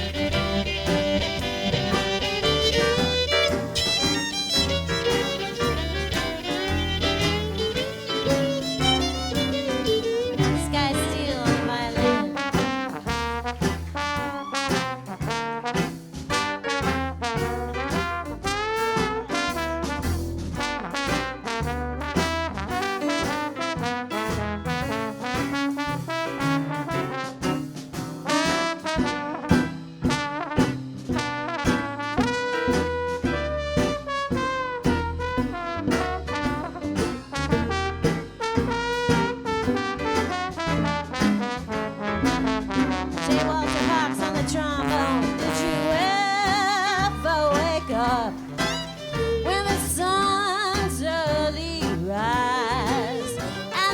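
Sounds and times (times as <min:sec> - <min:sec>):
jazz bass and rhythm section: 0:00.0 - 0:53.9
brass horn with slurred notes: 0:11.4 - 0:27.6, 0:28.2 - 0:49.1.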